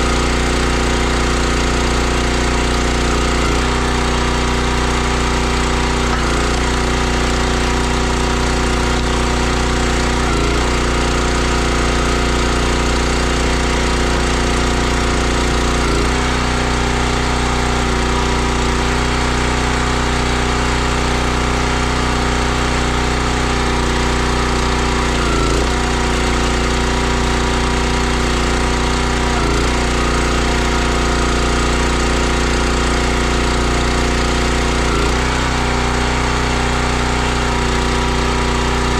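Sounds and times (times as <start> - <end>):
log splitter engine running: 0.0 - 38.9.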